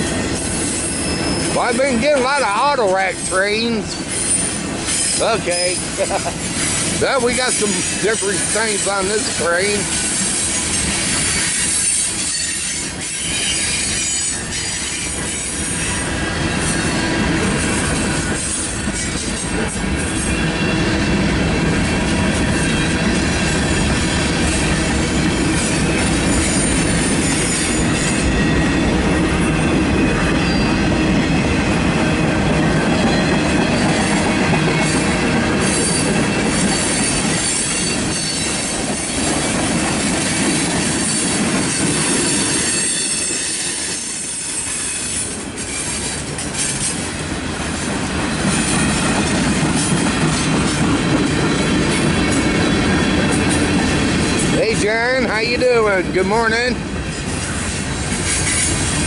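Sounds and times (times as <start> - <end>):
high wheel squeal: 0.0 - 21.2, 22.4 - 31.4, 32.6 - 39.4, 40.4 - 47.2, 57.1 - 59.0
freight train wheels rumbling: 0.0 - 59.0.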